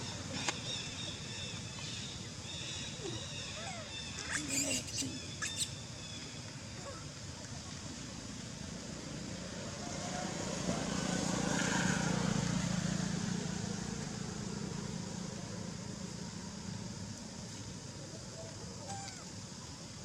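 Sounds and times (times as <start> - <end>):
vehicle passing by: 8.6 - 17.7.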